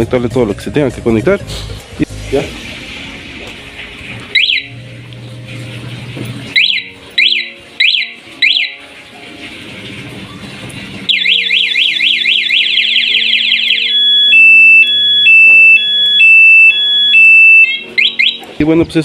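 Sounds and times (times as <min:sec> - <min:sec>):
motorcycle alarm siren: 0:04.3 - 0:04.8, 0:06.5 - 0:08.9, 0:11.1 - 0:18.5.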